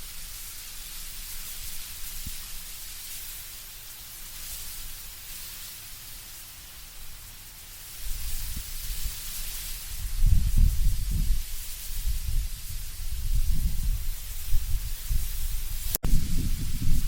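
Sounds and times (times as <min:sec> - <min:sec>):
leaves rustling in wind: 0:00.0 - 0:17.0
low gusty wind rumble: 0:09.9 - 0:17.0.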